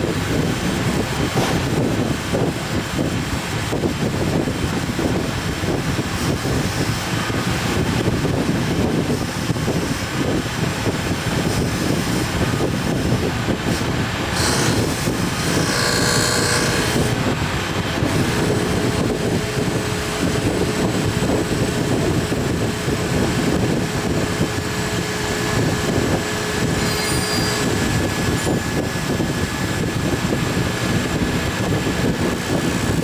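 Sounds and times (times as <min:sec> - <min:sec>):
factory machinery din: 0:00.0 - 0:05.2, 0:06.2 - 0:33.0
steady hum: 0:00.0 - 0:33.0
high squeal: 0:26.6 - 0:28.7.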